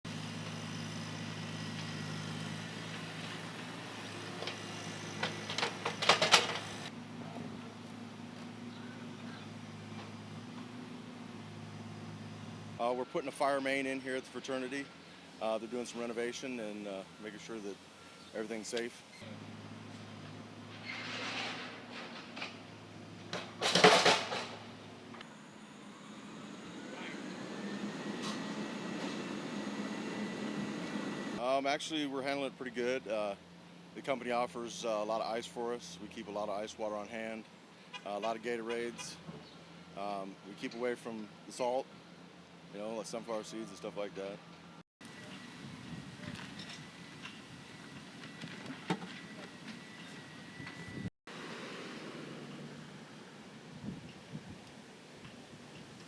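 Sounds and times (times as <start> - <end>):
engine idling: 22.7 - 31.4
sharp metal knocks and clanks: 23.3 - 24.7
machine hum with rising whine: 24.9 - 31.4.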